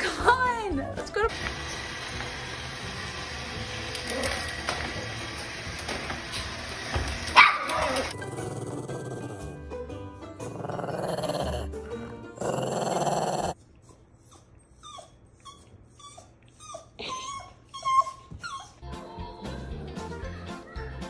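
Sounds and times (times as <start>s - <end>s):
background music: 7.4s - 13.6s, 18.8s - 21.0s
dog growling: 7.8s - 9.6s, 10.4s - 13.6s.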